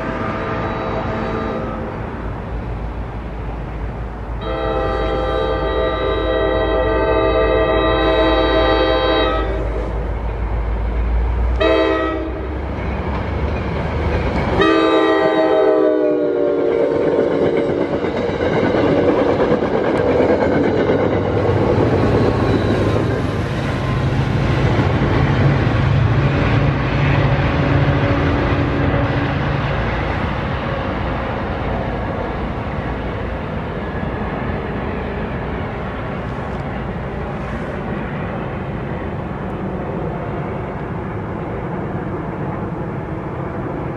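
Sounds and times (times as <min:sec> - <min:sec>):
locomotive air horn blasts: 0:00.0 - 0:02.0, 0:04.4 - 0:09.8, 0:11.6 - 0:12.6, 0:14.6 - 0:17.1
train rumble and wheel clatter: 0:00.0 - 0:43.9.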